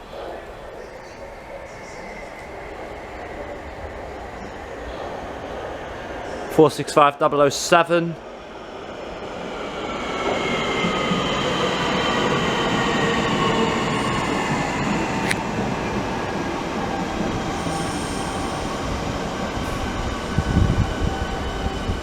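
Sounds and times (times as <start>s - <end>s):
electric train motor whine: 13.2s - 15.5s, 17.0s - 22.0s
sharp click: 15.2s - 15.4s.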